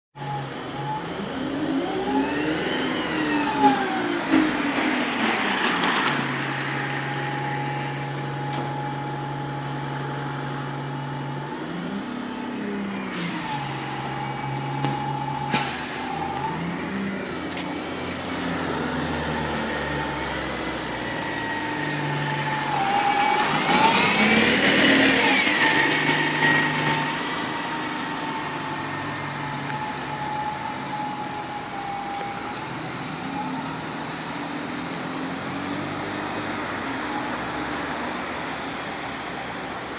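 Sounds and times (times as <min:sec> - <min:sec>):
bus engine revving: 0:00.2 - 0:39.9
short air hisses: 0:15.4 - 0:16.2.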